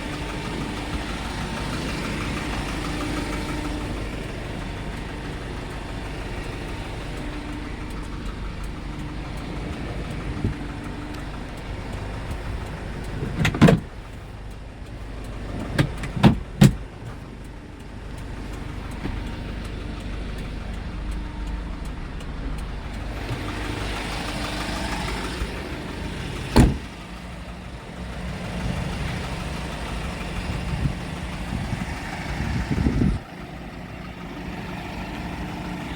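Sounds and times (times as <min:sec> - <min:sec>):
diesel truck engine idling: 0:00.0 - 0:35.9.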